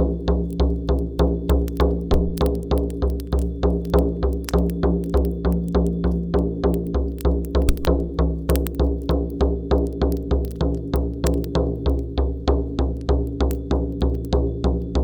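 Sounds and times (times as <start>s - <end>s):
frame drum beating: 7.6s - 8.4s.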